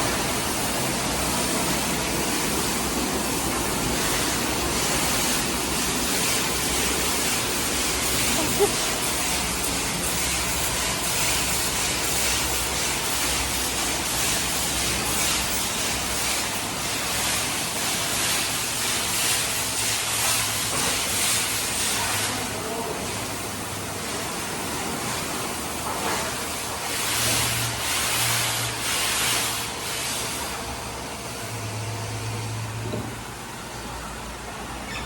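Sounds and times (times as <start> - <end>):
machinery hum: 0.0 - 18.8
water spraying hiss: 0.0 - 25.6, 26.3 - 30.7.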